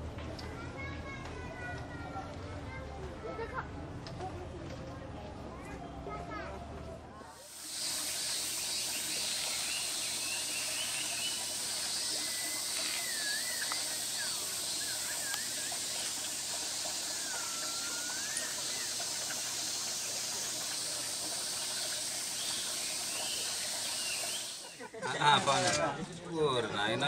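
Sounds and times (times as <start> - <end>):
steady hiss: 7.4 - 24.9
gliding whistling calls: 7.6 - 24.9.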